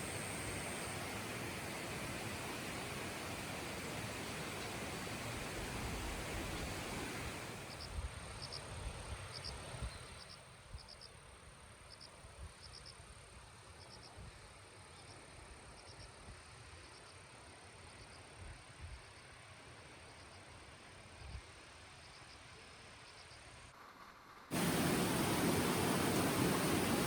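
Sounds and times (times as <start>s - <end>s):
insect chirping: 0.0s - 4.0s, 24.5s - 27.0s
steady hiss: 0.0s - 10.9s, 18.4s - 27.0s.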